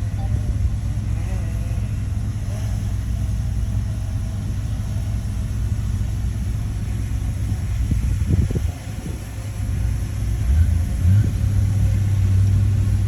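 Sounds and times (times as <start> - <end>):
bulldozer diesel engine rumbling: 0.0 - 13.0.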